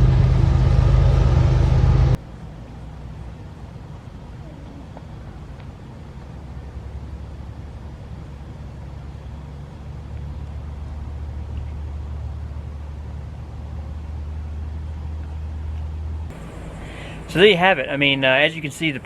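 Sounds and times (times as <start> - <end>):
vehicle rumble: 0.0 - 19.0.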